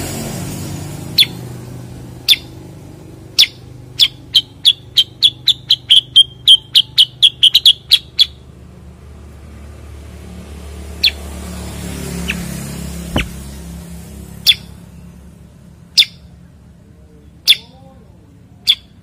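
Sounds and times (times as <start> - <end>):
bird chirping: 1.2 - 1.4, 2.2 - 2.6, 3.4 - 8.5, 10.9 - 17.9, 18.5 - 19.0.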